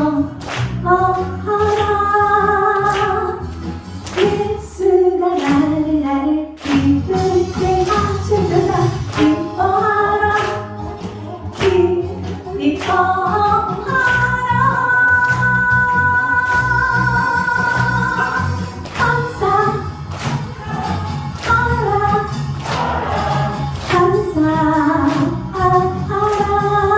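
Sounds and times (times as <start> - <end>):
woman singing gospel song: 0.0 - 3.5, 4.1 - 26.9
instrumental accompaniment: 16.0 - 26.9.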